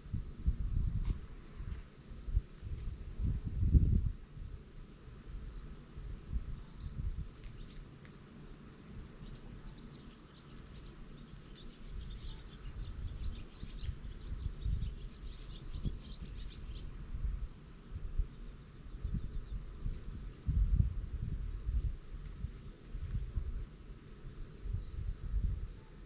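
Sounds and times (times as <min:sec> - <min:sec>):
bird twittering: 0:09.2 - 0:17.0.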